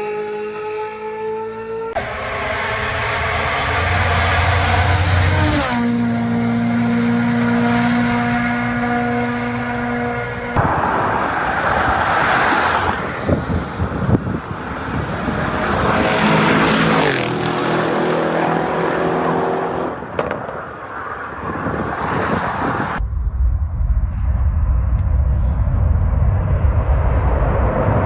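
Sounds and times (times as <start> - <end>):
fast cars passing at high revs: 0.0 - 23.0
deep low rumble: 2.0 - 6.1, 23.0 - 28.0.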